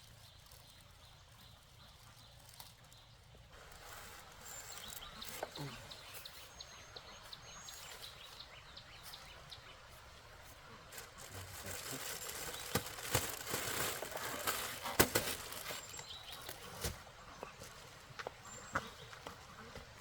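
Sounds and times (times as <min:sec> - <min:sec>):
faint bird chirps: 0:00.0 - 0:14.7
rustling noise: 0:02.3 - 0:06.6, 0:07.7 - 0:18.2.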